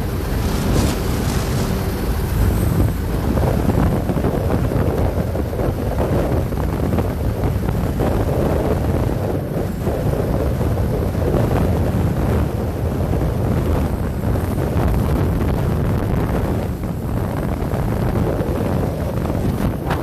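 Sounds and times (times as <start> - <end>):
motorcycle engine: 0.0 - 3.8
wind rushing over microphone: 0.0 - 20.0.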